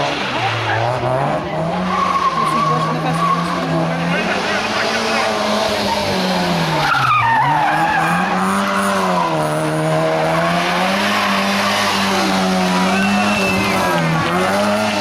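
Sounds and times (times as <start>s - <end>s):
car engine revving: 0.0s - 15.0s
tyre squeal: 6.7s - 9.5s, 12.7s - 15.0s.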